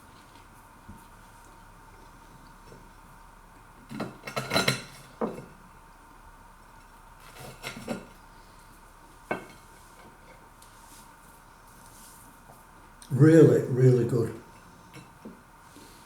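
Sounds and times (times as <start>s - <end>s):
cutlery clinking on a plate: 3.9s - 5.6s, 7.2s - 8.2s, 9.3s - 10.4s.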